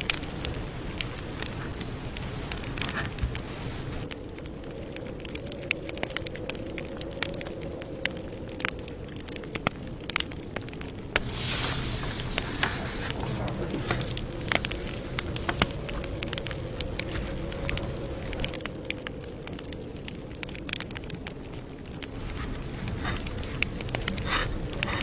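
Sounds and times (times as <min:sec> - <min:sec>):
campfire crackling and popping: 0:00.0 - 0:25.0
short hissing swell: 0:11.2 - 0:18.5
low steady rumble: 0:11.2 - 0:18.6, 0:22.1 - 0:25.0.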